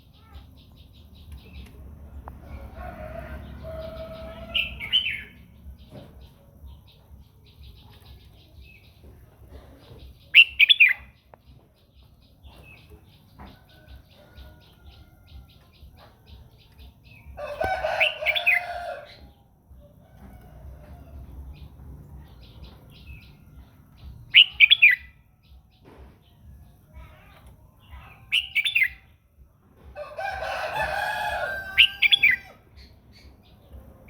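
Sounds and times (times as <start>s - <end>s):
rooster crowing: 2.4s - 5.0s, 17.4s - 19.2s, 30.0s - 32.6s.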